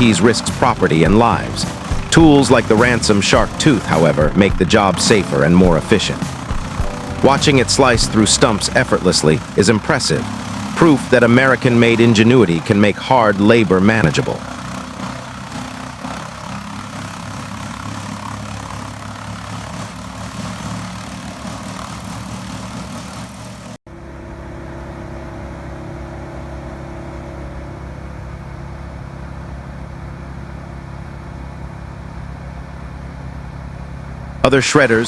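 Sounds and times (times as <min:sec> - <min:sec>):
grinding noise: 0:00.0 - 0:23.8
heavy machinery engine running: 0:00.0 - 0:34.5
smoother machine engine running: 0:00.0 - 0:35.0.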